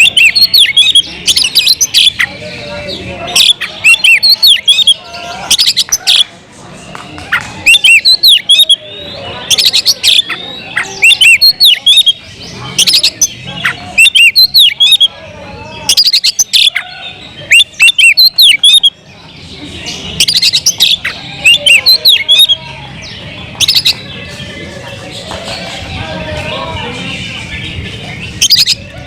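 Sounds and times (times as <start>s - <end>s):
bird singing whistled notes: 0.0s - 2.4s, 7.6s - 10.3s, 11.0s - 19.3s
bird chattering: 0.0s - 15.2s, 15.8s - 25.9s, 27.3s - 29.0s.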